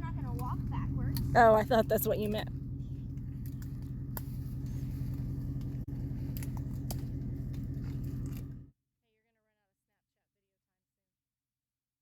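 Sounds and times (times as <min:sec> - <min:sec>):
truck engine idling: 0:00.0 - 0:08.7.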